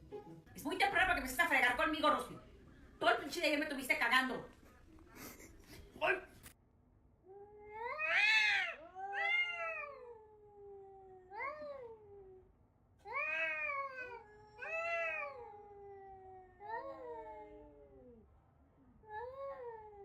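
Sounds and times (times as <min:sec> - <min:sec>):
cat yowling: 0:07.4 - 0:12.4, 0:13.1 - 0:18.2.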